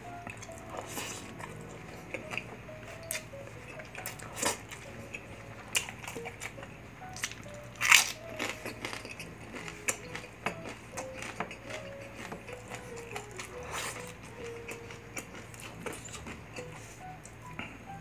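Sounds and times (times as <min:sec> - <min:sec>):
close chewing and mouth sounds: 0:00.0 - 0:17.8
faint background music: 0:00.0 - 0:18.0.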